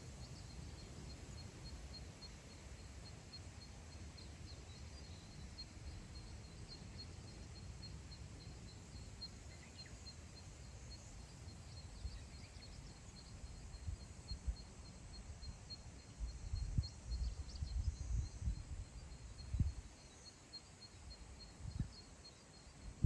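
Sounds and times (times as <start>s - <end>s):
wind rumbling on microphone: 16.2s - 19.9s, 21.5s - 22.0s.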